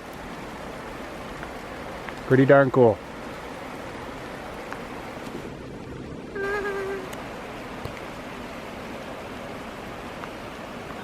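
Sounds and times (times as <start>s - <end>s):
person humming: 6.4s - 7.2s.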